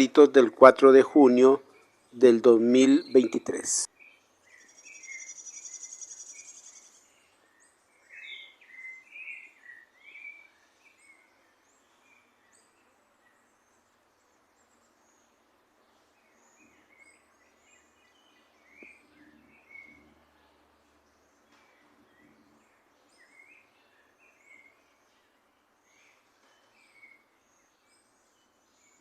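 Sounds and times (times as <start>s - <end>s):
small birds chirping: 0.0s - 29.0s
buzzy bird trill: 4.6s - 7.1s.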